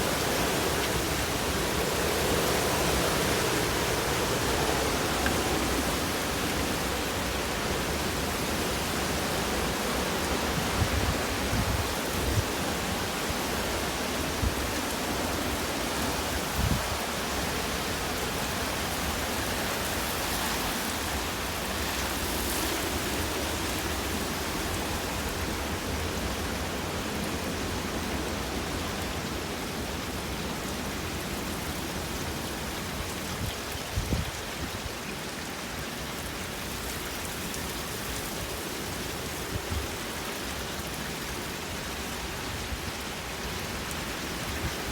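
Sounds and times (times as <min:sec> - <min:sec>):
high wind gusts: 0:00.0 - 0:35.0
wind-driven rain: 0:00.0 - 0:44.9.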